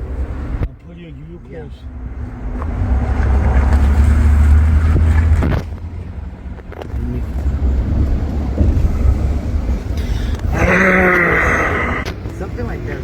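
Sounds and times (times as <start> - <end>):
motor vehicle rumble: 0.0 - 13.0.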